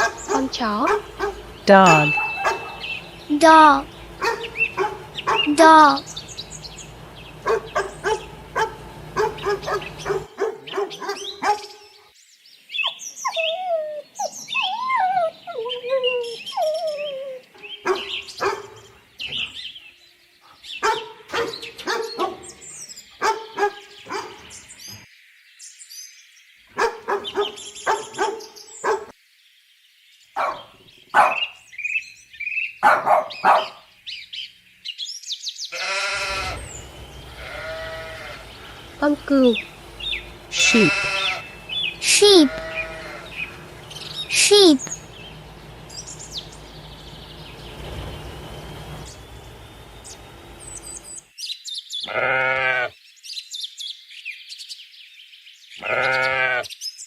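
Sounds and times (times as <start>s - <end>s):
dog barking: 0.0s - 3.1s, 4.2s - 6.2s, 7.3s - 11.8s, 17.8s - 18.9s, 20.8s - 22.6s, 23.2s - 24.5s, 26.8s - 29.1s, 30.4s - 31.6s, 32.8s - 33.9s
dog yipping: 0.0s - 3.1s, 4.2s - 6.2s, 7.4s - 11.8s, 12.8s - 18.8s, 20.8s - 22.5s, 23.2s - 24.4s, 26.8s - 29.1s, 30.4s - 30.6s, 31.2s - 31.5s, 32.8s - 33.8s
dog whining: 0.0s - 6.2s, 7.4s - 11.6s, 13.2s - 18.6s, 40.5s - 45.0s.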